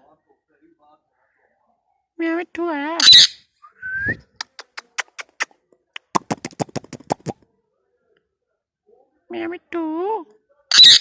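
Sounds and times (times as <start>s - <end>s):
parrot rapid clicks: 6.0s - 7.3s.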